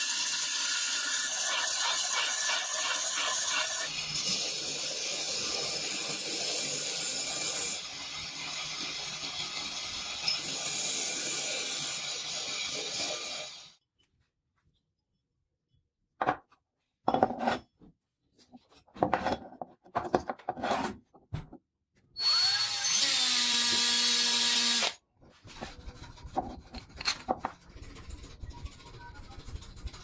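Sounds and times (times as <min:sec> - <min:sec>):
small electric power tool running: 0:22.2 - 0:25.0
faint scratching: 0:25.3 - 0:30.0.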